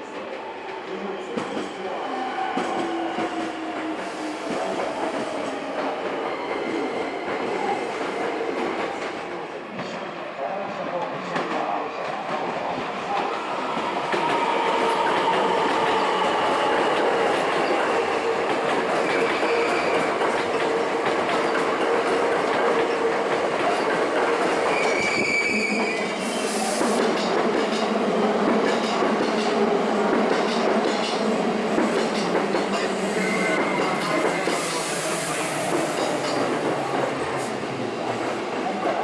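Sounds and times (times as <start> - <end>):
steady tone from train: 13.7 - 20.4, 32.8 - 36.4
high squeal: 24.7 - 26.8, 33.0 - 35.4.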